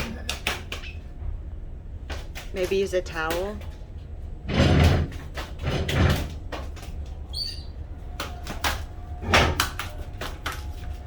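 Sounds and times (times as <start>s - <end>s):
short high bird chirp: 7.4s - 7.7s.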